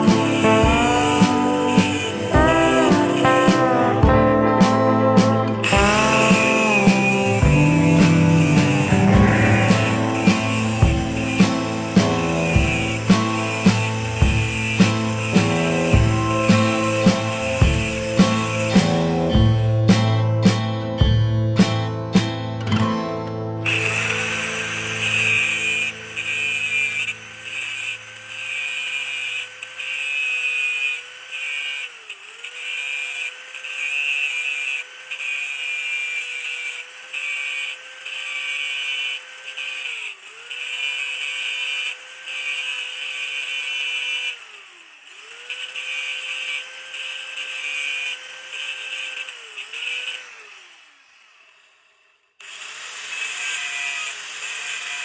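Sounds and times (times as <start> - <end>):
grinding hiss: 0.0 - 4.0, 5.6 - 19.7, 23.6 - 44.7
rotary power tool whining: 0.0 - 20.4, 23.6 - 55.0.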